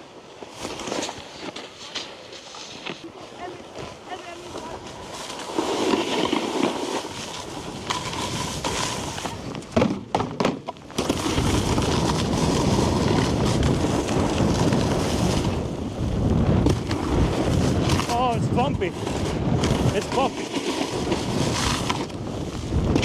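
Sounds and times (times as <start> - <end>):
snowboard scraping on icy snow: 0.0 - 10.1, 10.8 - 23.0
wind on microphone: 11.1 - 23.0.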